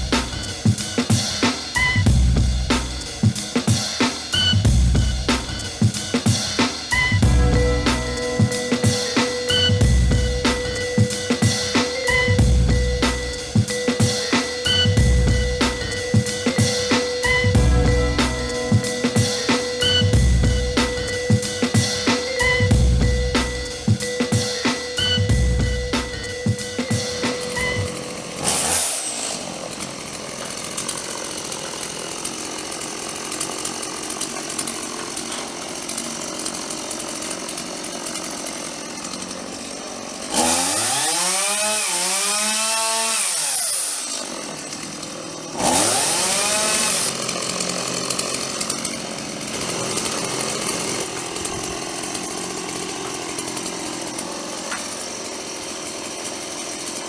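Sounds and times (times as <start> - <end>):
chainsaw idling and revving: 0.0 - 57.0.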